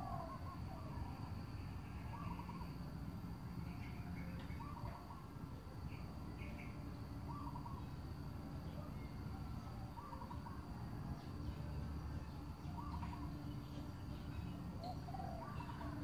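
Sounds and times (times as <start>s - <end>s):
bird calling a phrase: 4.6s - 5.3s, 9.4s - 10.7s.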